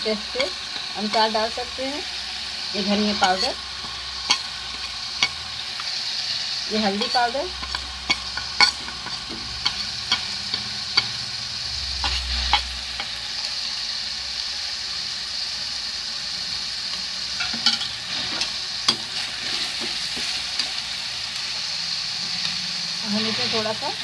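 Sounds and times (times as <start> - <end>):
metal utensils clinking on pan: 0.0 - 1.6, 2.8 - 5.4, 6.8 - 11.2, 17.4 - 19.9
paste sizzling in oil: 0.0 - 24.0.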